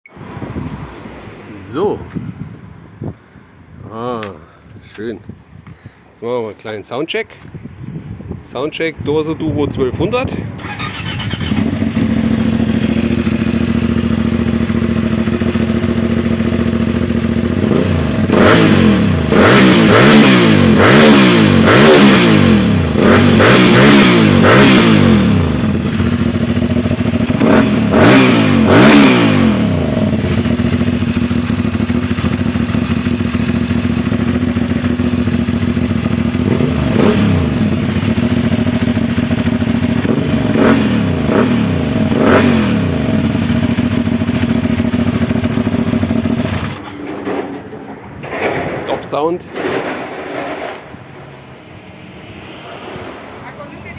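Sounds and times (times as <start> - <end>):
motorcycle engine idling and revving: 10.6 - 48.6.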